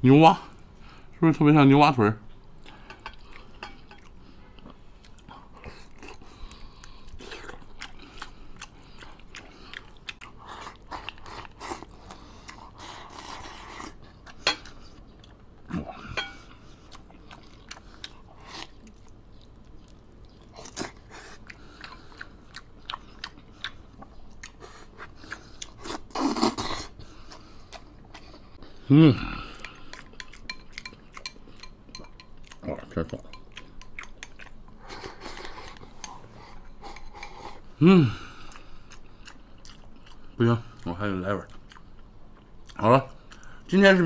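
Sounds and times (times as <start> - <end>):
chewing and mouth noises: 2.3 - 44.0.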